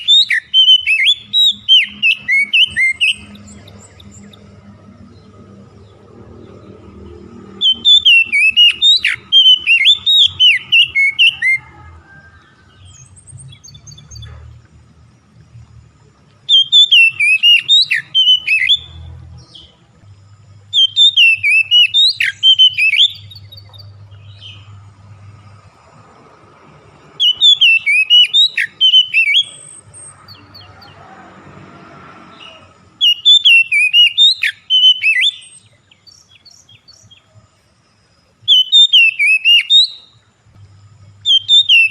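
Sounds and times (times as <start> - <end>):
songbird whistling: 0.0 - 11.8, 16.5 - 19.8, 20.6 - 24.8, 27.2 - 31.0, 32.4 - 37.3, 38.5 - 40.2, 41.2 - 41.9.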